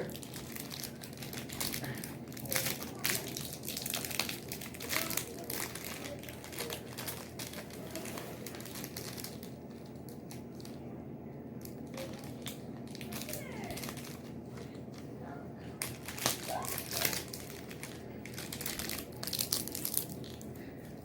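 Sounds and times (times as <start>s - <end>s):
plastic wrapper crinkling: 0.0s - 10.8s, 11.6s - 21.0s.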